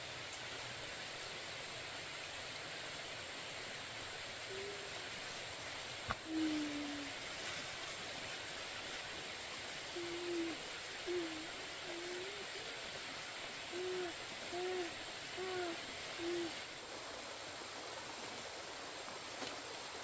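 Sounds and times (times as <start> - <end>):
steady outdoor hiss: 0.0 - 20.0
low hooting call: 4.4 - 5.2, 6.1 - 7.2, 9.9 - 16.6.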